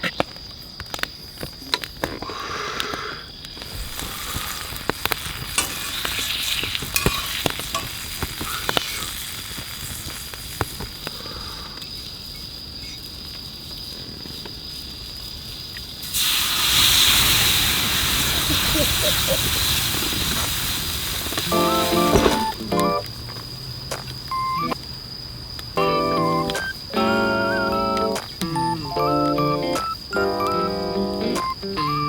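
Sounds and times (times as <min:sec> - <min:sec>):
sharp pops and crackles: 0:00.0 - 0:12.0, 0:15.6 - 0:25.0, 0:25.6 - 0:27.0, 0:27.6 - 0:32.0
loud hiss: 0:02.5 - 0:11.8, 0:16.0 - 0:23.1
meat sizzling over campfire: 0:03.4 - 0:31.8.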